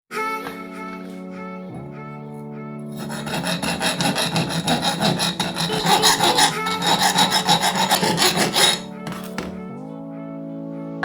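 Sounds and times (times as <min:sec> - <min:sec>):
drum sander rasping on wood: 0:02.9 - 0:09.4
drill motor humming: 0:03.0 - 0:08.8.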